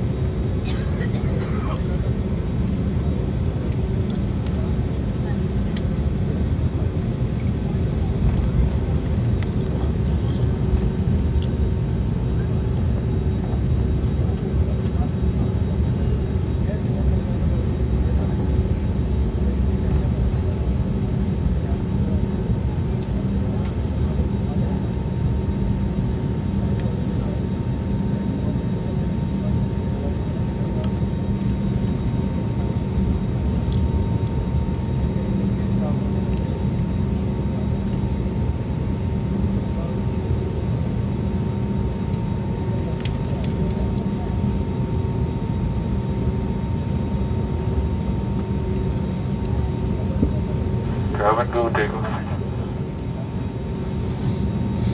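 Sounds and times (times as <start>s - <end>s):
aircraft cabin rumble and hum: 0.0s - 54.9s
jet engines rumbling: 48.0s - 54.9s
thin steady whine: 49.1s - 54.9s.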